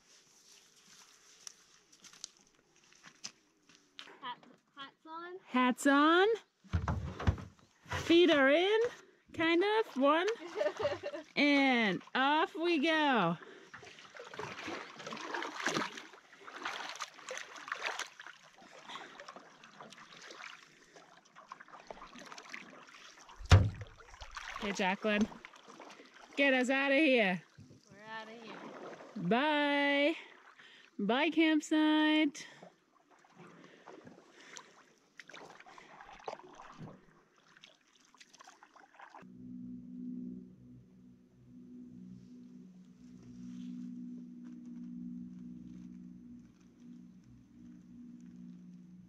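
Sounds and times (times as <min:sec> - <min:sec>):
water splashing around canoe: 0:06.7 - 0:09.1, 0:09.7 - 0:31.0, 0:32.5 - 0:39.3.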